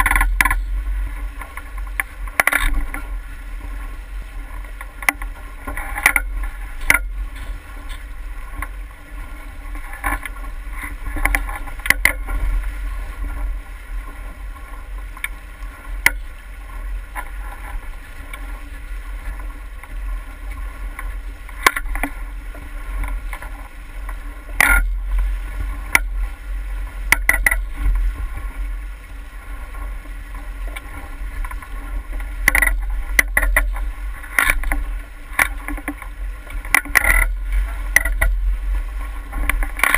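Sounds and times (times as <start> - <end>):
low wind rumble on microphone: 0.0 - 39.9
water sloshing against boat hull: 0.0 - 39.9
sharp knocks and clicks: 4.8 - 8.0, 11.1 - 12.4, 27.1 - 28.0, 32.4 - 38.4, 39.3 - 39.9.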